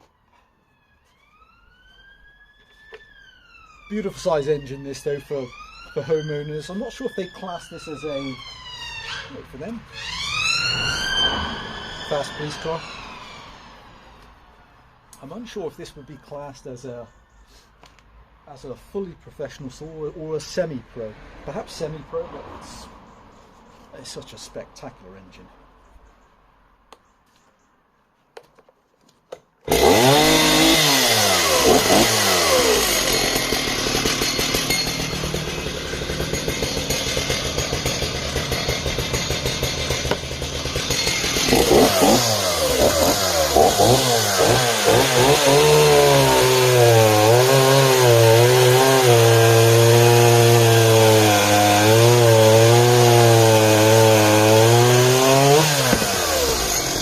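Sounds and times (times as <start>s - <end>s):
chainsaw cutting wood: 9.0s - 13.0s, 29.6s - 57.0s.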